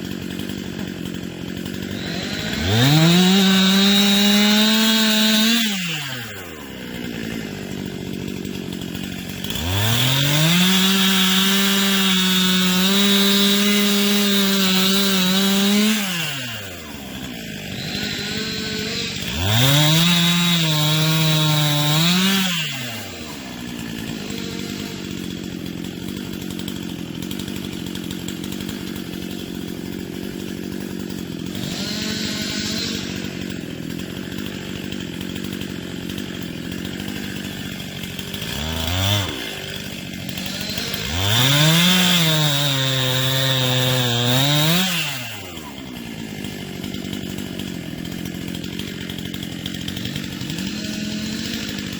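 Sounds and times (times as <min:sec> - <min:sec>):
chainsaw revving and idling: 0:00.0 - 0:51.9.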